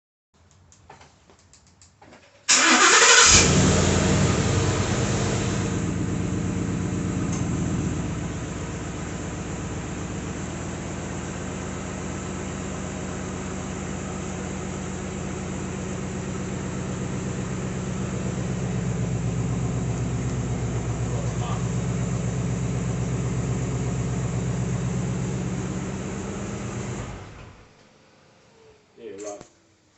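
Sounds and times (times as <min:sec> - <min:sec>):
car engine starting and idling: 0:02.4 - 0:27.7
starter motor cranking: 0:02.5 - 0:03.7.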